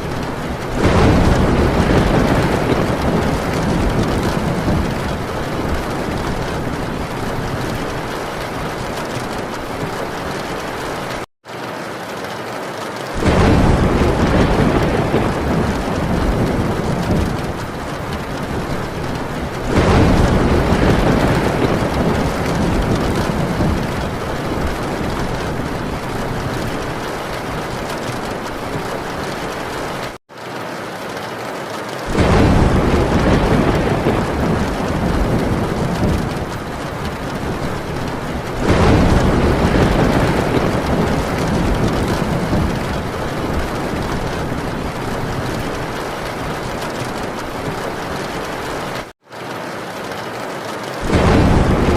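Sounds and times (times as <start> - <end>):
thunder rumbling: 0.0 - 11.3, 13.2 - 30.2, 32.0 - 49.1, 51.0 - 51.9
heavy rain on a tin roof: 0.0 - 51.9.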